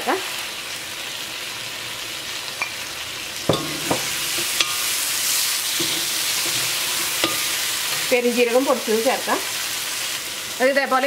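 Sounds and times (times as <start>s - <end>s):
masala frying in hot oil: 0.0s - 11.0s
metal spoon scraping a pan: 3.4s - 9.1s.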